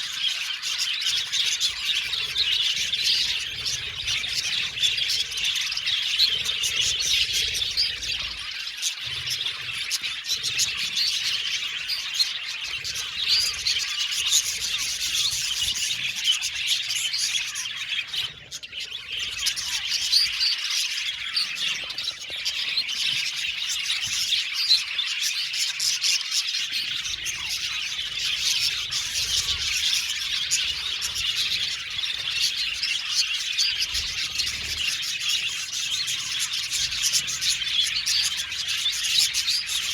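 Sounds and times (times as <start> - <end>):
flock of budgerigars chattering: 0.0 - 39.9.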